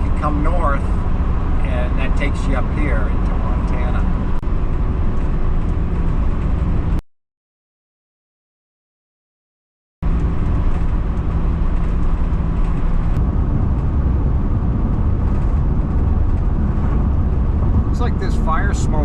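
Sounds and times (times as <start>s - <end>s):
van driving on highway: 0.0s - 7.0s, 10.0s - 19.0s.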